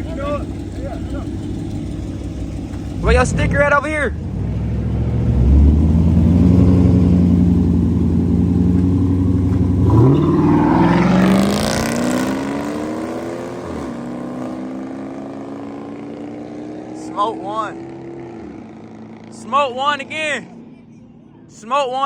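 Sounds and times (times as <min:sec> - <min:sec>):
car engine revving: 0:00.0 - 0:20.6.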